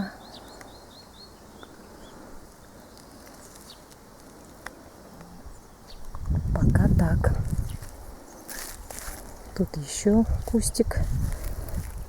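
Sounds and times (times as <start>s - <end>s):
bird chirping: 0.0s - 3.9s
faint background noise: 0.0s - 12.0s.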